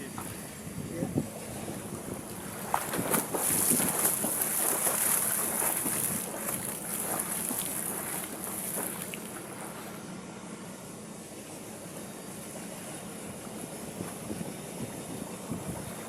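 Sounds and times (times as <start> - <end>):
water splashing around swimmer: 1.5 - 9.9.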